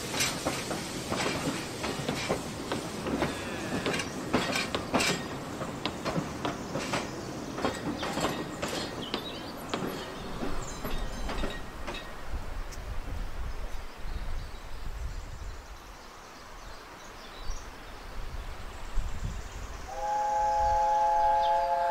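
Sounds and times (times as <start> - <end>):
train wheels clicking on rail joints: 0.0 - 12.9
train low rumble: 0.0 - 15.5.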